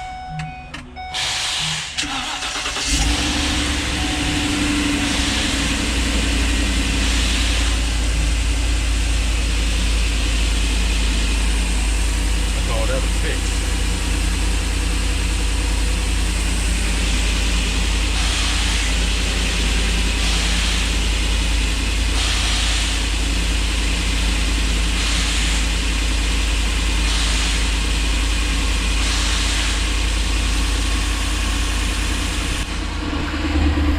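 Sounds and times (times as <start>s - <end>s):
van engine idling: 0.0s - 33.9s
hiss: 1.2s - 2.0s, 18.1s - 21.1s, 22.1s - 23.3s, 24.1s - 25.9s, 26.9s - 28.0s, 29.0s - 30.0s.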